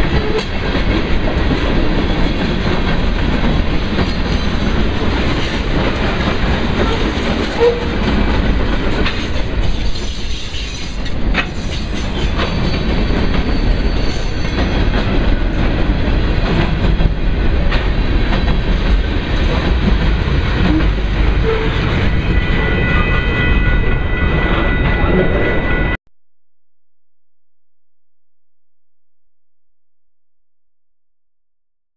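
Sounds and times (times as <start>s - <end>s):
freight cars rolling on rails: 0.0s - 25.1s.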